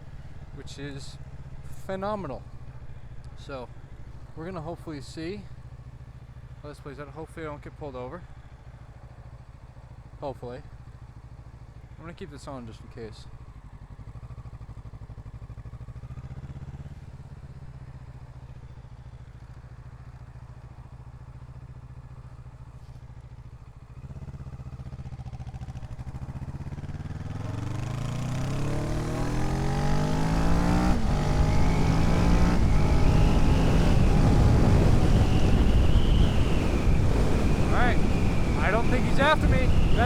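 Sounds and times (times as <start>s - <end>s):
motorcycle engine: 13.3s - 40.0s
wind noise on microphone: 32.4s - 40.0s.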